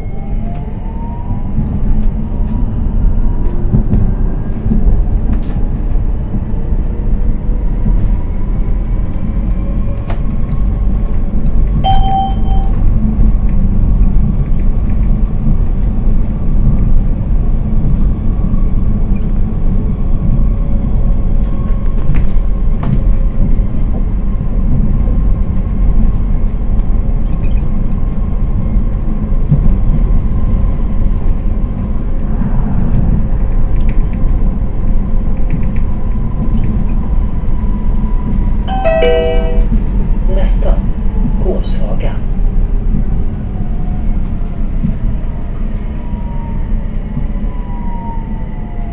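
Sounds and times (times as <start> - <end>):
wheels rumbling on track: 0.0 - 48.9
short beep: 11.8 - 12.8, 38.7 - 39.8.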